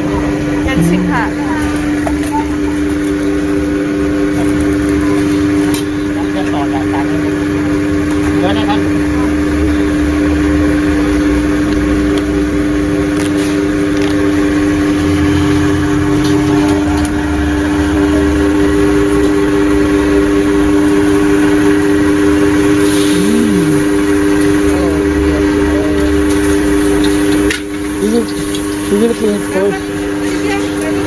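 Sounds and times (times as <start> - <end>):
mechanical motor hum: 0.0 - 31.0.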